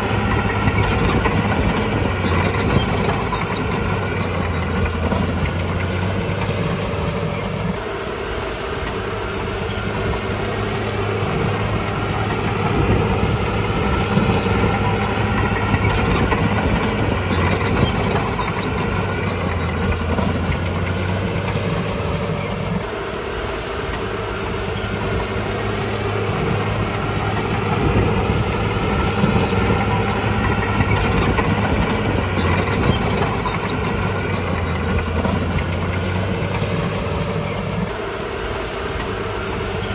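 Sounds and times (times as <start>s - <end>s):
sharp rattles: 0.0s - 7.6s, 10.3s - 22.8s, 24.7s - 37.8s
bulldozer diesel engine under load: 0.0s - 39.9s.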